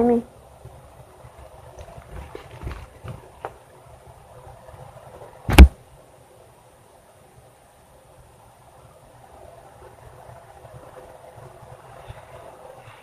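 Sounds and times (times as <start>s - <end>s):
faint clicks and rustles: 0.5s - 5.4s
loud sharp thump: 5.5s - 5.8s.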